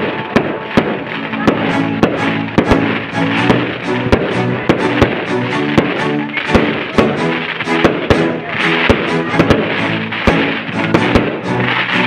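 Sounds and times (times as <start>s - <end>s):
fireworks bursting: 0.0s - 12.0s
music: 0.0s - 12.0s.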